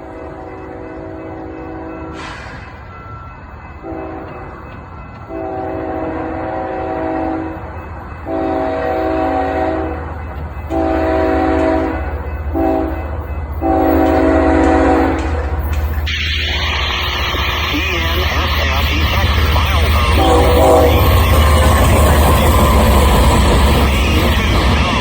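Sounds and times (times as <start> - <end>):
train rumbling: 0.0 - 25.0
locomotive air horn blasts: 5.3 - 7.6, 8.3 - 10.0, 10.7 - 12.9, 13.6 - 15.4, 19.2 - 22.1.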